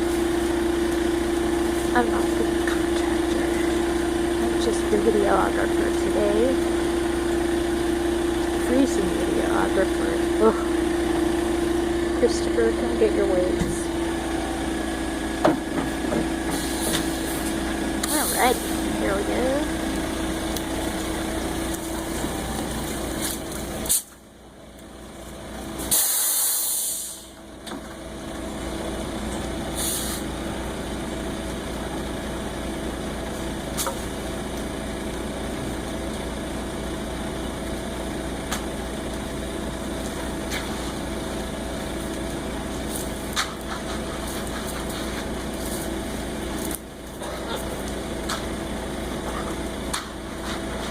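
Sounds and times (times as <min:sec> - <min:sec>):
truck engine running: 0:00.0 - 0:50.9
air hissing: 0:25.8 - 0:27.4, 0:29.7 - 0:30.3.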